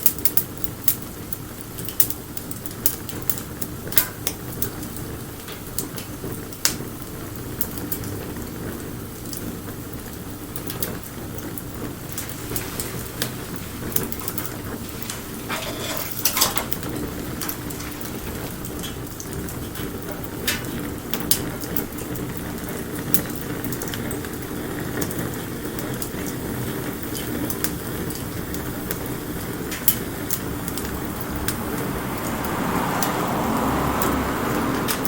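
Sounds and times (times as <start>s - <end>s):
campfire hissing and rumbling: 0.0s - 35.0s
fire crackling and popping: 0.0s - 35.0s.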